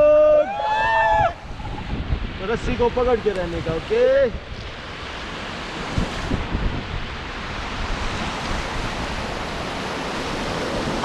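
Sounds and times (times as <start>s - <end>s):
wind buffeting microphone: 0.0s - 11.0s
river rapids roaring: 7.0s - 11.0s.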